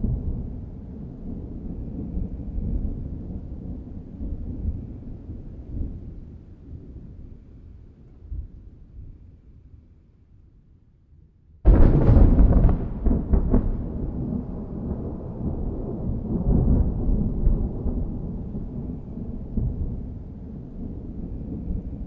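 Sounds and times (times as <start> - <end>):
thunder rumbling: 0.0 - 7.1, 11.7 - 22.0
sharp thunder cracks: 11.7 - 20.2.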